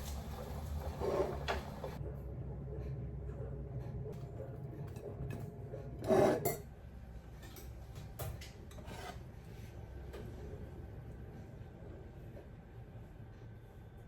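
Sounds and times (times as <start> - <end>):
dish scraping rub: 0.0 - 2.0, 6.0 - 6.5, 8.8 - 9.2.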